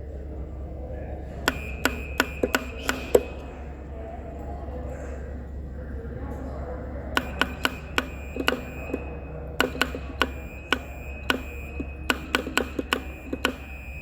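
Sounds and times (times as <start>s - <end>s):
steady low hum: 0.0s - 14.0s
telegraph sounder clicking: 1.4s - 3.6s, 7.0s - 14.0s.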